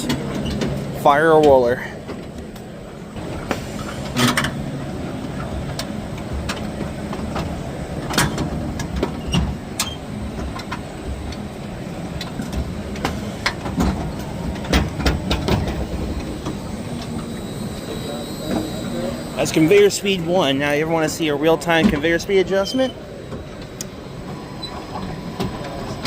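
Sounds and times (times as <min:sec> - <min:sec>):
conveyor mechanical rumble: 0:00.0 - 0:26.0
sharp clicks and clanks: 0:05.2 - 0:11.5, 0:12.2 - 0:17.4.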